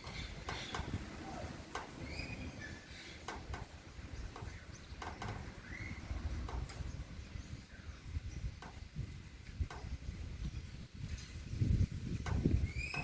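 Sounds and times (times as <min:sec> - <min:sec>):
bird call: 0:00.0 - 0:03.5
wind buffeting microphone: 0:00.0 - 0:13.0.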